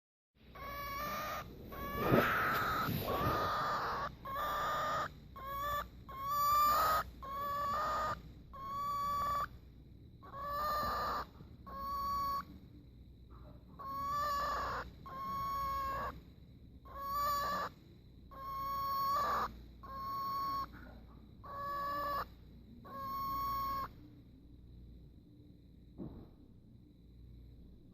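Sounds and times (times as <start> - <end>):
cockatiel calling: 0.5 - 9.6, 10.2 - 12.6, 13.8 - 16.2, 16.8 - 20.8, 21.4 - 24.0.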